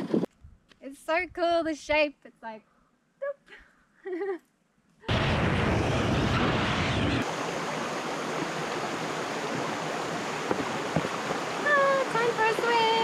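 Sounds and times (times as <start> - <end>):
heavy low rumble: 5.1 - 7.2
flowing creek: 7.2 - 13.0.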